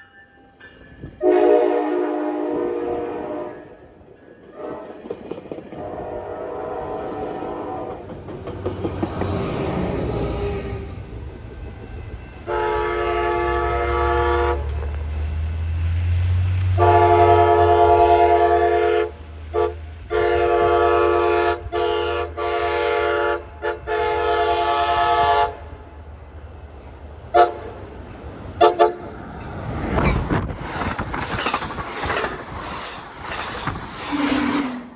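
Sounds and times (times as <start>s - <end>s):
locomotive horn chord: 1.2s - 3.9s, 5.8s - 8.0s, 12.4s - 14.8s, 16.8s - 25.6s, 27.4s - 27.7s, 28.6s - 29.1s
locomotive engine rumble: 25.7s - 34.9s.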